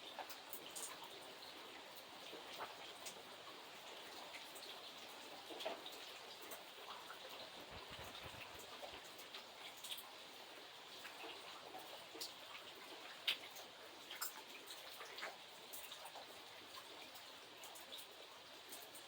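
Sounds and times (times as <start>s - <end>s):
light rain falling: 0.0s - 19.0s
raindrops ticking on a surface: 0.0s - 19.0s.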